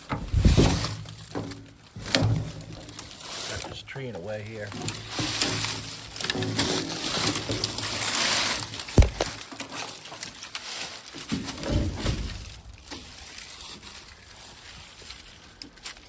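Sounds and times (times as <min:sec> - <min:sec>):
rustling and handling noise: 0:04.7 - 0:11.6
dull thump: 0:09.0 - 0:09.4
sharp knock: 0:09.0 - 0:09.4.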